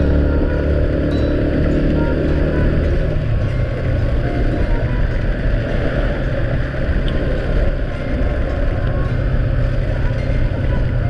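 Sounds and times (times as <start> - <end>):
road and wind noise: 0.0 - 11.0
vehicle engine rumbling: 0.0 - 11.0.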